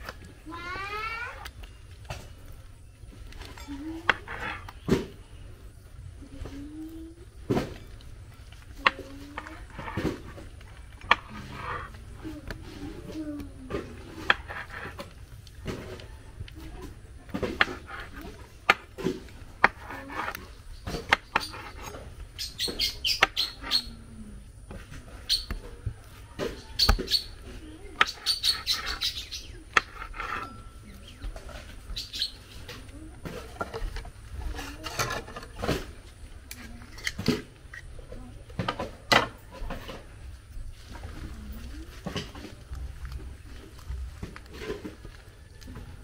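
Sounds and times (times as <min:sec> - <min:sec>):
birds chirping: 0:17.6 - 0:33.9.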